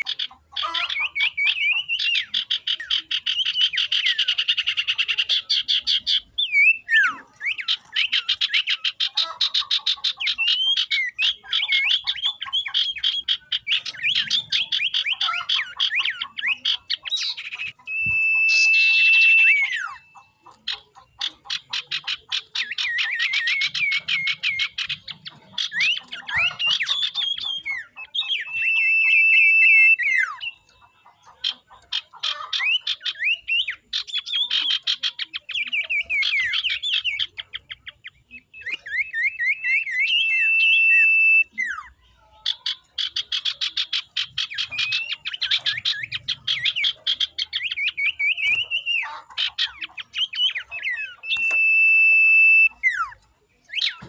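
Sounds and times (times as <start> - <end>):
birds chattering: 0.0 - 54.0.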